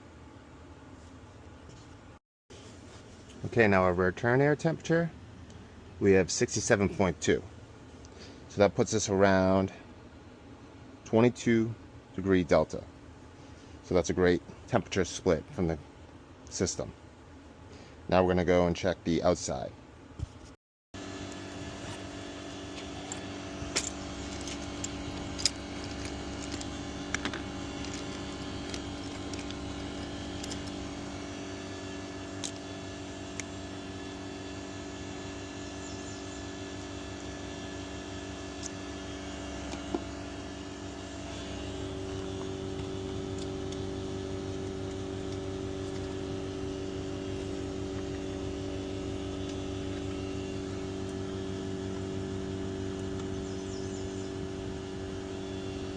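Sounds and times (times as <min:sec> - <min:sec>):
heat pump humming: 0:21.0 - 0:55.9
tools clicking and jangling: 0:22.8 - 0:30.8.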